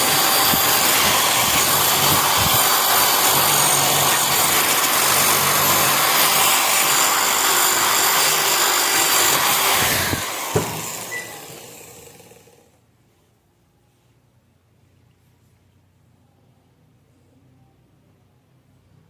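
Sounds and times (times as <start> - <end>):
abrasive wheel grinding steel: 0.0 - 12.6.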